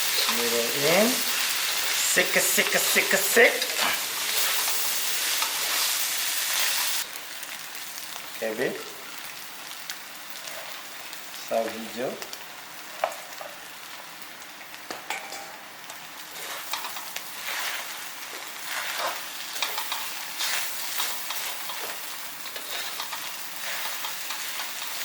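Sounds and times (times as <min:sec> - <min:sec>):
noodles sizzling in a pan: 0:00.0 - 0:25.0
stirring scrapes and clicks: 0:18.6 - 0:25.0.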